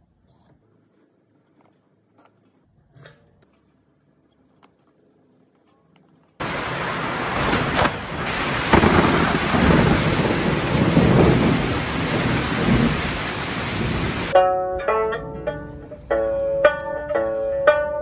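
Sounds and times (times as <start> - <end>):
heavy rain pouring: 6.4 - 14.4
low rolling thunder: 6.4 - 14.4.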